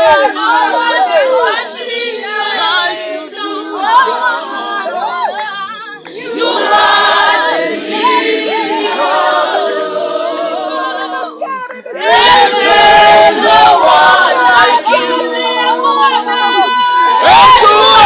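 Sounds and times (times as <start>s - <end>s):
group singing without instruments: 0.0s - 18.0s.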